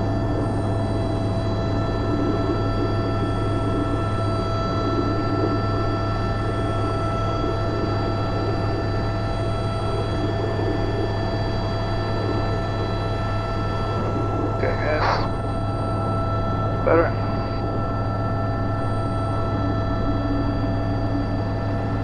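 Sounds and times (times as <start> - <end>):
helicopter rotor drone: 0.0 - 22.0
turbine engine whine: 0.0 - 22.0.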